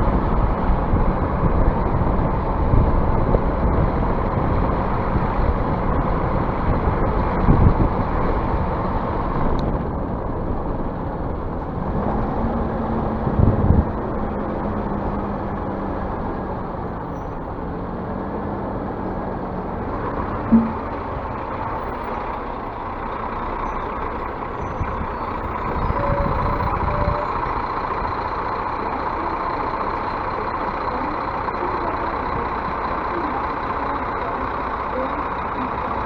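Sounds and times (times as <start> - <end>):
bus engine and road noise: 0.0 - 36.0
short thumps: 20.4 - 21.1.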